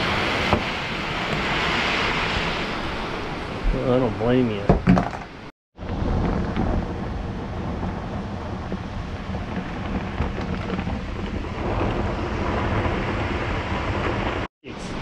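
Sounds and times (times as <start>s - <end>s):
rain pouring: 0.0s - 15.0s
low rumble of thunder: 5.8s - 14.5s.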